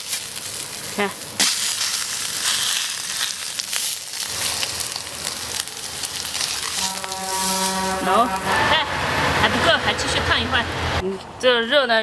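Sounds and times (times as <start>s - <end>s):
pork skin sizzling and crackling: 0.0s - 9.4s.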